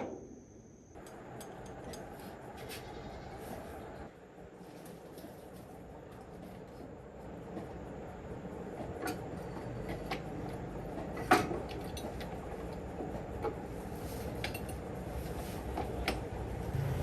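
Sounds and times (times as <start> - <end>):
metal tools clinking: 14.3 - 14.8.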